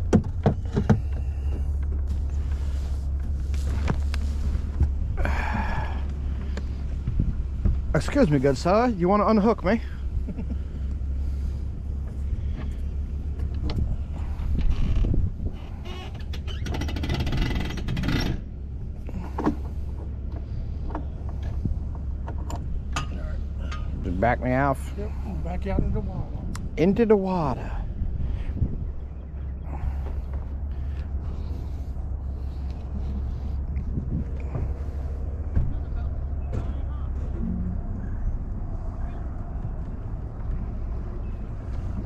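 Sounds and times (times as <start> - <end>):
sharp knocks and clicks: 0.0 - 2.1
wind buffeting microphone: 0.0 - 15.8, 18.5 - 42.0.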